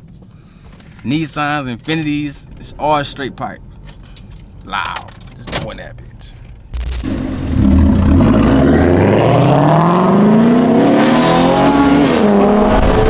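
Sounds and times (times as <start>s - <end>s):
loud car engine revving: 6.8s - 13.0s.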